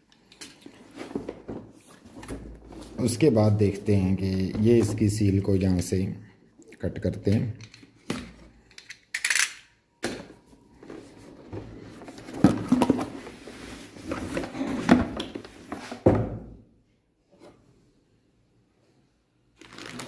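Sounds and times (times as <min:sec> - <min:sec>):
cardboard packaging rustling: 0:19.6 - 0:20.0.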